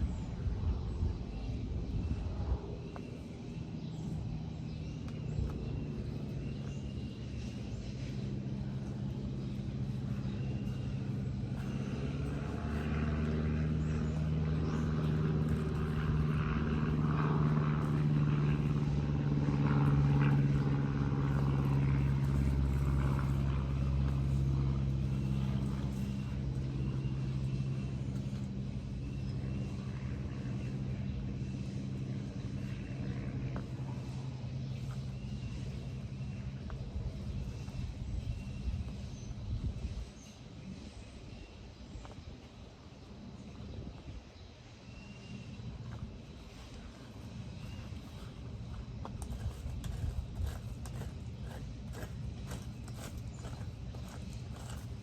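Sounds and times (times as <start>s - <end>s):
motor engine droning: 0.0s - 55.0s.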